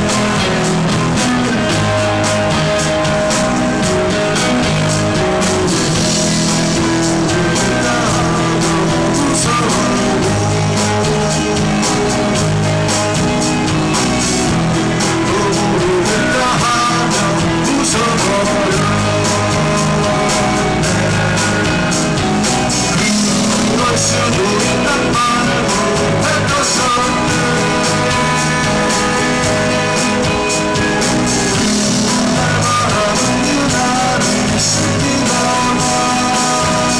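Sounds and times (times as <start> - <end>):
bass guitar: 0.0 - 36.9
drum kit: 0.0 - 36.9
electric guitar: 0.0 - 36.9.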